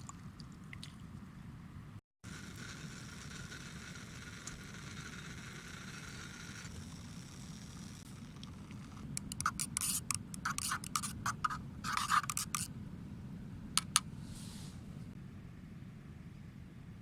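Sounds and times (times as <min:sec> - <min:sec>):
soft hiss: 0:14.1 - 0:15.2.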